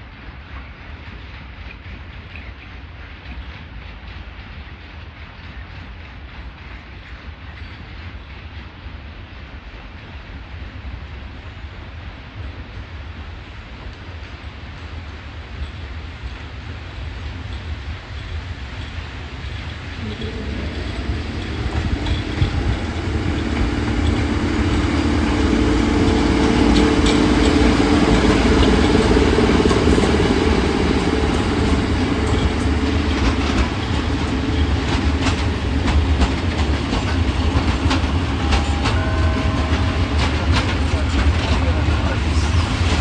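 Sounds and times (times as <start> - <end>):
freight train rumbling: 0.0 - 43.0
wheels clicking over rail joints: 18.2 - 42.2
humming tone: 20.0 - 35.4.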